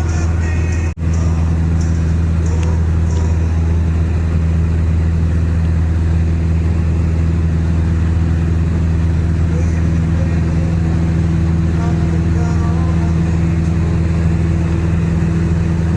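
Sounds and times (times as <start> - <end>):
small plane engine and propeller: 0.0 - 15.9.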